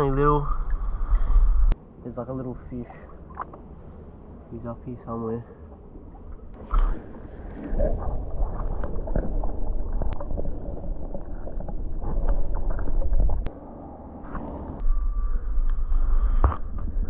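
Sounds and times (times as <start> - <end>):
wind rumbling on microphone: 5.7 - 13.6
water sloshing among rocks: 6.1 - 13.5.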